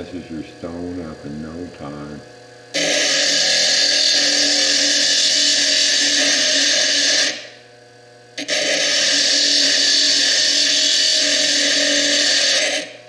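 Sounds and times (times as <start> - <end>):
faint lathe hum: 0.0 - 13.0
disc grinding stone: 2.8 - 7.6, 8.4 - 13.0.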